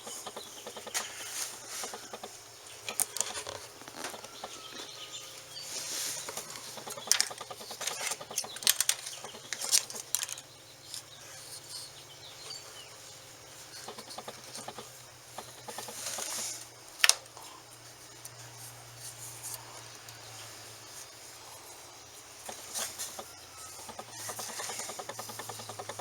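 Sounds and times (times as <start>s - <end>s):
sharp clicks and knocks: 0.0s - 4.9s, 6.2s - 11.1s, 13.7s - 16.4s, 22.4s - 26.0s
rustling: 0.0s - 10.5s.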